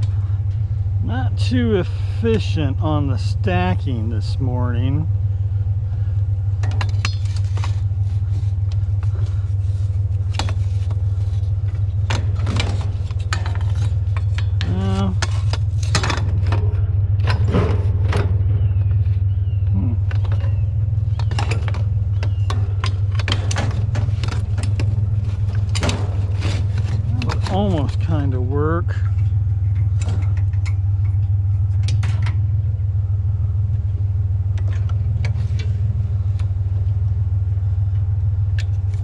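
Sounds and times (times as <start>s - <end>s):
truck engine idling: 0.0s - 39.0s
metal chairs clanking: 21.2s - 30.6s.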